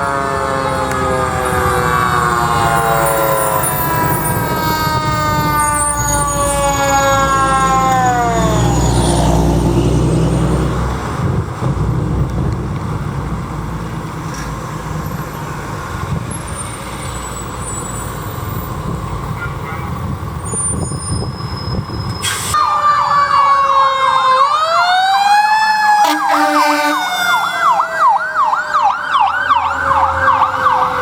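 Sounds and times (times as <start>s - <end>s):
fire truck siren winding down: 0.0s - 12.3s, 20.4s - 31.0s
truck engine rumbling: 0.0s - 23.4s, 26.1s - 31.0s.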